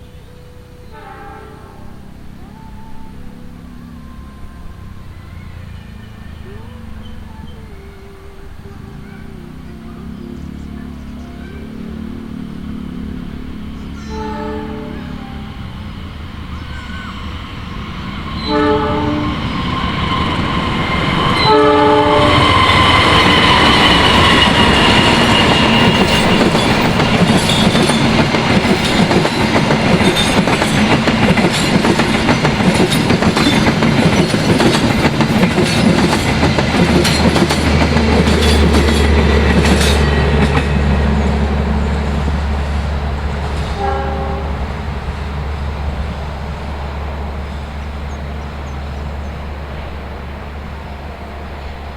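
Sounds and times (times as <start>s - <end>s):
locomotive whine: 0.0s - 51.9s
train horn blasts: 0.4s - 5.0s, 12.7s - 29.0s, 38.2s - 48.8s
wheels clacking over rail joints: 19.4s - 51.9s.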